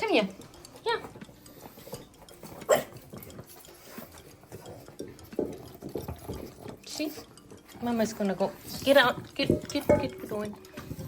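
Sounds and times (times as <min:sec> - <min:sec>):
dogs licking a bowl: 0:00.0 - 0:11.0
metal bowl clattering and scraping: 0:00.0 - 0:11.0.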